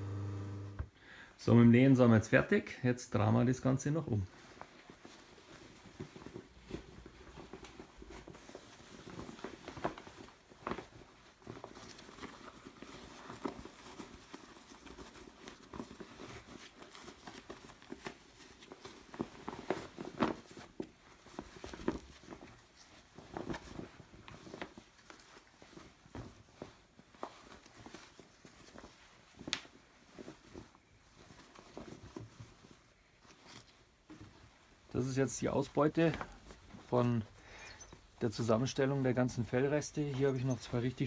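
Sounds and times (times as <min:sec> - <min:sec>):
faint steady hum: 0:00.0 - 0:01.3
fur and fabric rustling: 0:02.4 - 0:41.0.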